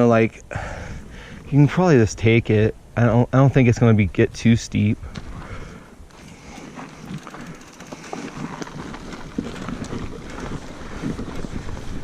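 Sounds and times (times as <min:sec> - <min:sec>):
bike tyres rolling on dirt: 0:05.0 - 0:12.0
bike clicks and rattles: 0:06.1 - 0:12.0
wind rushing over microphone: 0:08.3 - 0:12.0.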